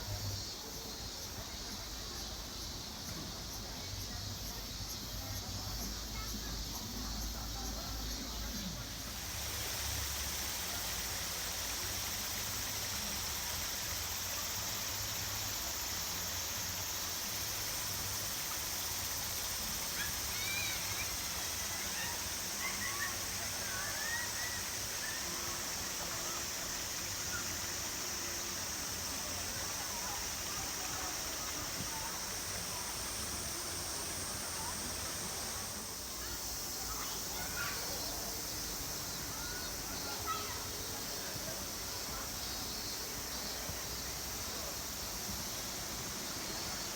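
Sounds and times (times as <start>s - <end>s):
river hiss: 0.0s - 46.9s.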